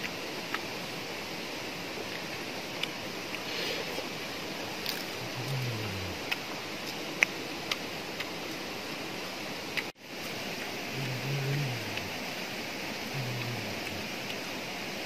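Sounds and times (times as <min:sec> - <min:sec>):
forest stream rushing: 0:00.0 - 0:15.0
man humming: 0:05.2 - 0:06.2, 0:10.9 - 0:12.2, 0:13.0 - 0:14.3.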